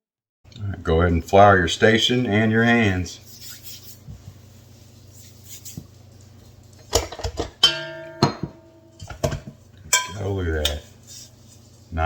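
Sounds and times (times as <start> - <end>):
metal bowl knocking on counter: 7.2 - 10.2.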